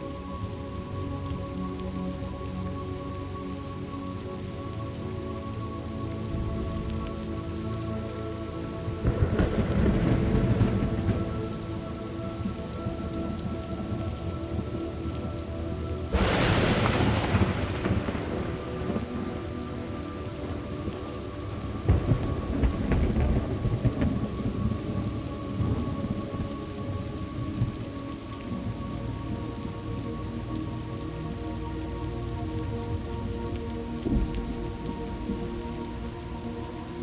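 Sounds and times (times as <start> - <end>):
steady rain: 0.0 - 37.0
rolling thunder: 9.0 - 14.8, 16.1 - 27.9, 34.0 - 35.8
sharp thunderclap: 16.1 - 20.9, 21.9 - 24.7.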